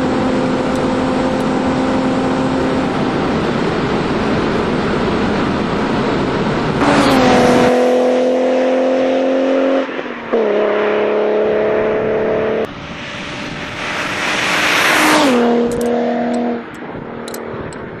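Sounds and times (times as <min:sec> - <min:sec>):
car engine at high revs: 0:00.0 - 0:18.0
car passing by: 0:06.8 - 0:17.6.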